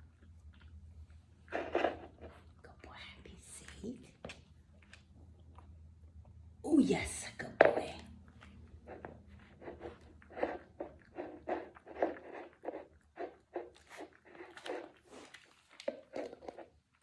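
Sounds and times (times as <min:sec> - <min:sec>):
dog crunching food: 0:00.1 - 0:02.6, 0:08.2 - 0:17.0.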